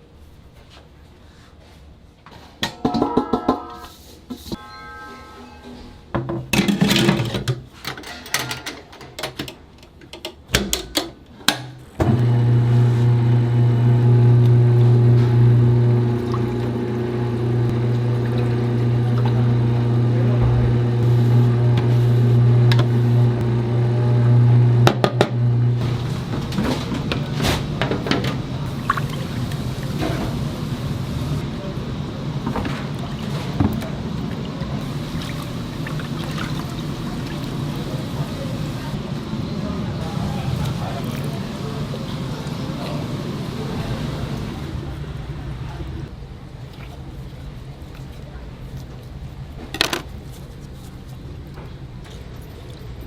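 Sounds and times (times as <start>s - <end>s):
low electric hum: 12.1s - 46.2s.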